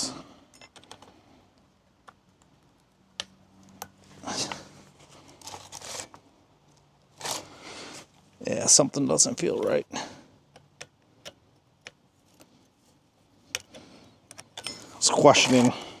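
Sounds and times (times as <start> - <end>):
clicks and scrapes of chainsaw work: 3.6 - 8.3, 9.2 - 16.0.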